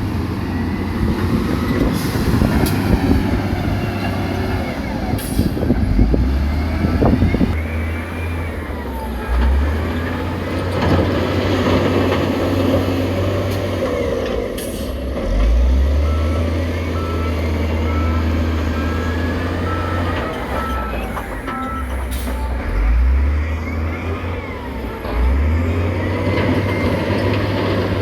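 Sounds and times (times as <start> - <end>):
diesel engine droning: 0.0 - 28.0
reversing alarm beeping: 6.3 - 10.1, 15.7 - 27.8.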